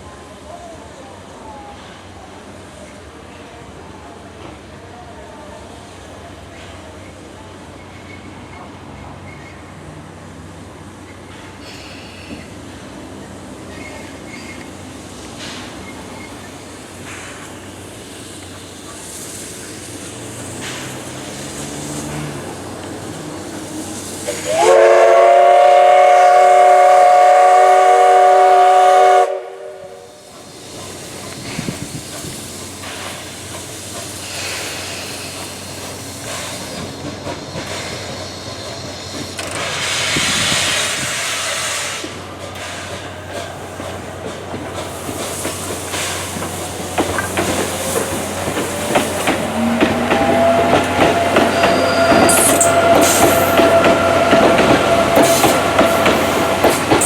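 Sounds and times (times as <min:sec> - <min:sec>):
train running: 0:00.0 - 0:57.0
steam hissing: 0:05.7 - 0:57.0
steam locomotive whistle: 0:24.2 - 0:30.3, 0:49.0 - 0:57.0.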